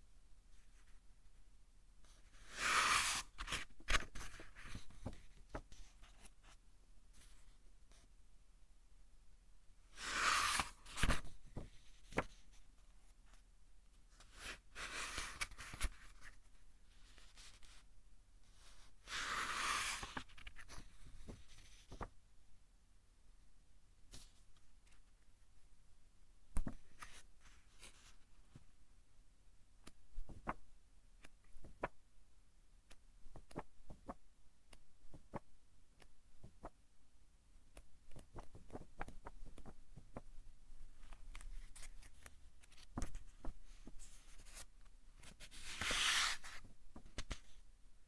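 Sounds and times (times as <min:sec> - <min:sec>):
book pages turning: 0:02.4 - 0:05.7, 0:45.2 - 0:47.4.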